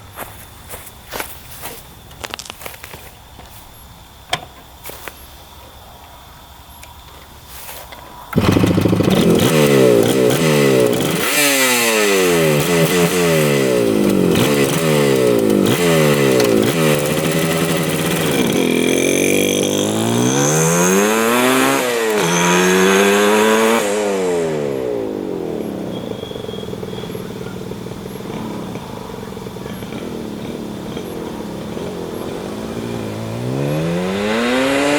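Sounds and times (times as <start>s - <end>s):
two-stroke motorcycle engine revving: 8.4s - 34.9s.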